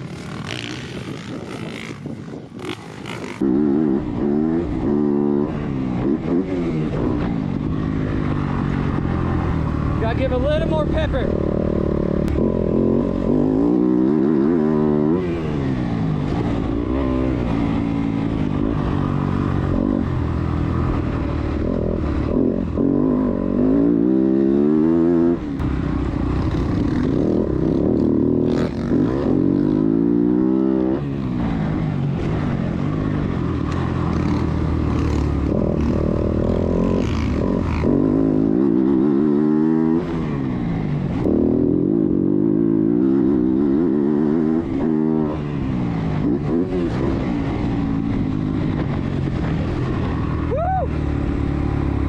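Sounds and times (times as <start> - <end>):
motocross bike engine revving: 0.0 - 31.8, 32.9 - 50.4.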